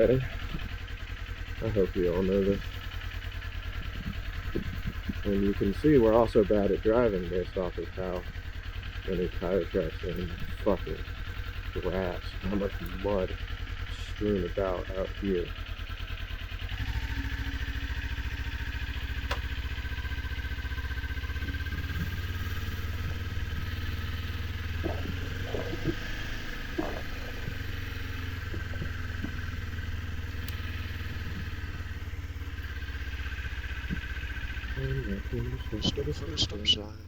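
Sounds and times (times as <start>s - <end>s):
motorcycle engine running: 0.0s - 37.0s
sharp clicks: 19.1s - 19.7s, 21.3s - 32.9s.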